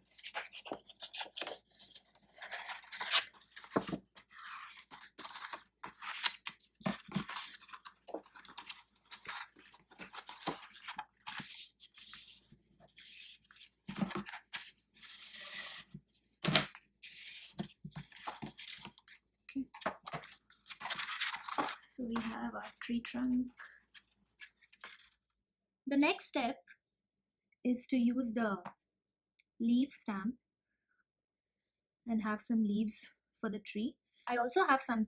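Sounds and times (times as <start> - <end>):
paper card rustling and crinkling: 0.0 - 23.0, 23.9 - 25.2.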